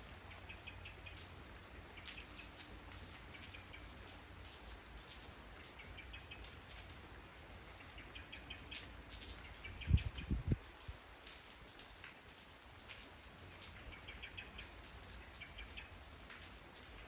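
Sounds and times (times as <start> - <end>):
raindrops ticking: 0.0 - 17.0
steady rain: 0.0 - 17.0
bird chirping: 7.8 - 10.4, 13.9 - 14.8.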